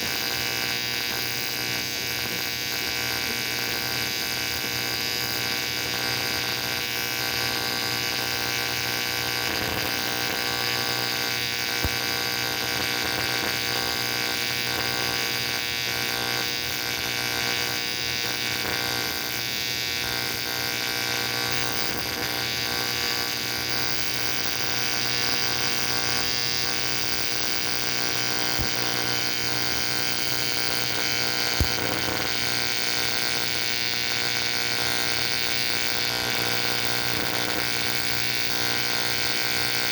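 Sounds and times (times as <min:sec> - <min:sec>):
welding arc buzzing: 0:00.0 - 0:39.9
small click: 0:31.6 - 0:31.9, 0:36.0 - 0:36.6.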